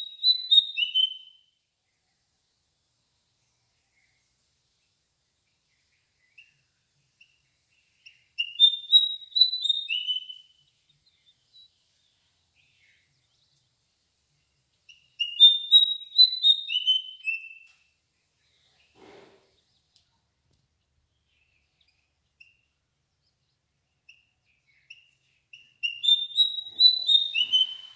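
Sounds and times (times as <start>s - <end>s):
songbird chirping: 0.0s - 27.9s
faint brief rustle: 18.7s - 20.2s.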